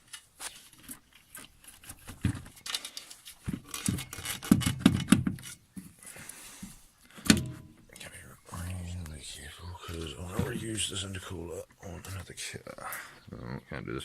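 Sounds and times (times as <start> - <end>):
metal parts knocking and scraping: 2.0 - 5.6.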